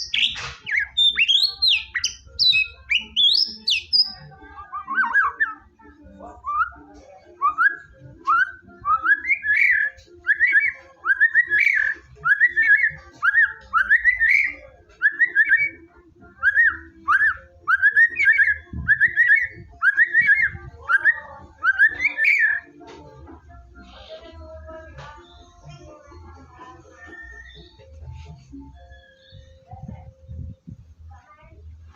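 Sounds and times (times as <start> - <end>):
bird singing whistled phrases: 0.0 - 5.7, 6.4 - 22.7, 27.1 - 28.0.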